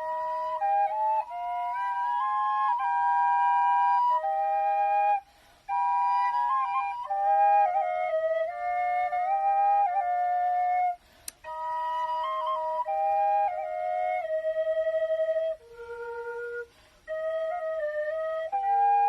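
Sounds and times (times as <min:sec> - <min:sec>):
flutes playing slow melody: 0:00.0 - 0:19.0
small click: 0:11.2 - 0:11.8.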